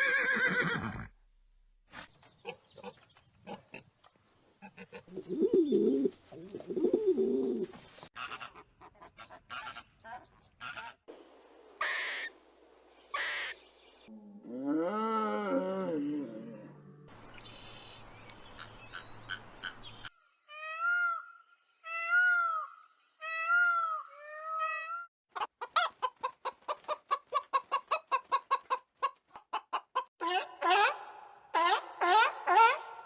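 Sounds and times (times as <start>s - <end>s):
chickens clucking: 25.3s - 30.5s.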